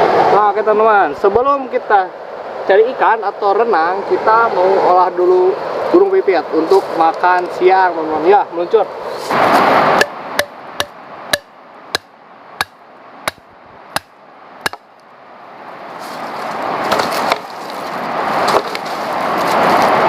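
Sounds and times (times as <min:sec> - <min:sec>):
rushing noise: 0:08.8 - 0:20.0
sharp chopping knocks: 0:10.0 - 0:14.9.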